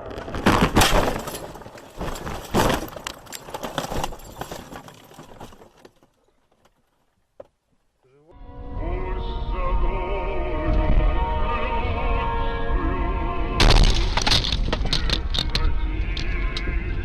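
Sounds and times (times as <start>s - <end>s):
car crash: 0.0s - 6.0s, 13.6s - 16.6s
crunching and clattering impacts: 0.0s - 7.9s, 13.6s - 17.0s.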